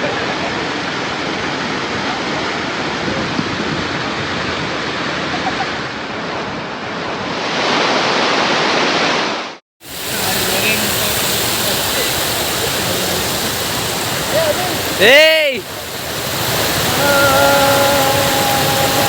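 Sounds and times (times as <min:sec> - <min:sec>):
waterfall rushing: 0:09.8 - 0:19.0.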